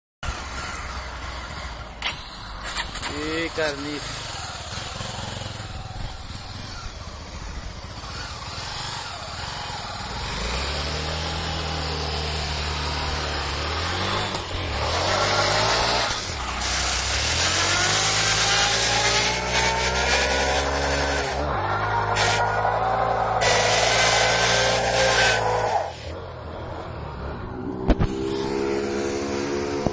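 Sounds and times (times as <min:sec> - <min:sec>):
motorcycle engine revving hard: 0:00.2 - 0:26.2, 0:27.4 - 0:29.9.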